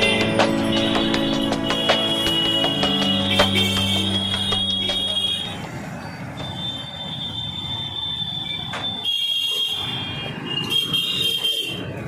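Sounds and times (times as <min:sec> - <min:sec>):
high-pitched electronic tones: 0:00.0 - 0:06.2
street traffic rumble: 0:00.0 - 0:12.0.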